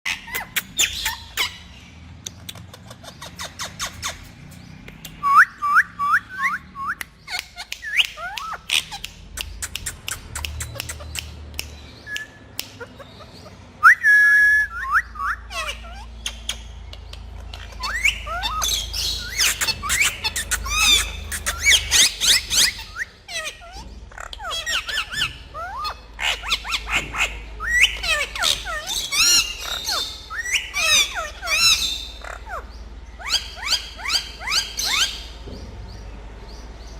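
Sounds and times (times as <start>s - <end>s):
parrots whistling and calling: 0.1s - 35.5s
sharp clicks: 7.0s - 12.8s.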